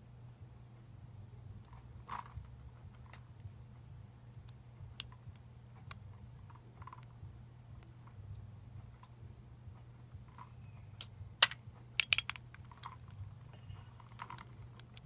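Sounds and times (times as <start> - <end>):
steady low hum: 0.0 - 15.0
small clicks and taps of parts: 10.3 - 13.2, 14.0 - 15.0.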